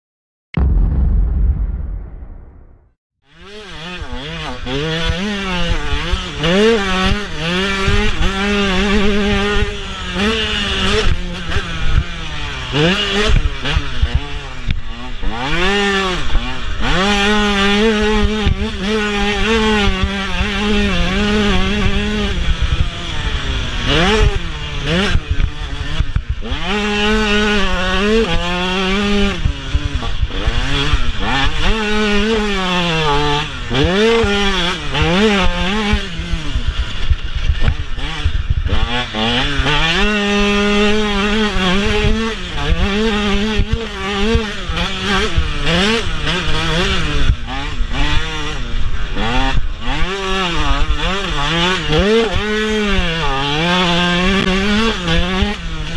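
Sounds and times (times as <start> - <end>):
motocross engine revving: 3.5 - 55.9.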